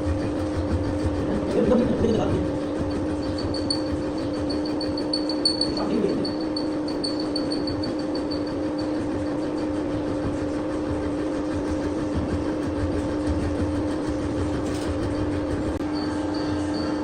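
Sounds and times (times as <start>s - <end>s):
workshop machine motor humming: 0.0s - 17.0s.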